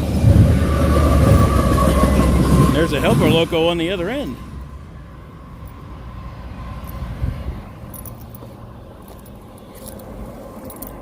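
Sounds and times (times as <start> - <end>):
freight train rumbling past: 0.0 - 9.0
light metallic jingling: 7.8 - 11.0.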